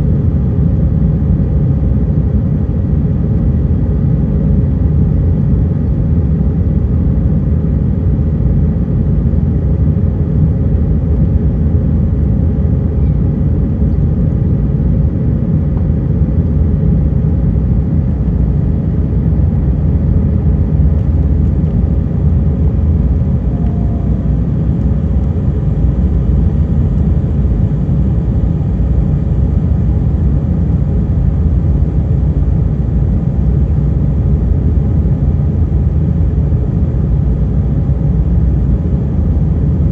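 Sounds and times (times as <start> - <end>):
faint steady hum: 0.0 - 39.9
jet engine rumble in cabin: 0.0 - 39.9.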